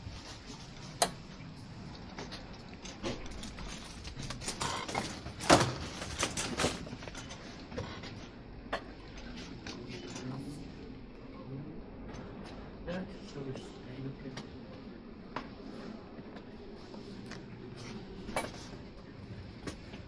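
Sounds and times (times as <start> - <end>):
low background hum: 0.0 - 20.0
clicks and knocks of carts: 2.3 - 8.0.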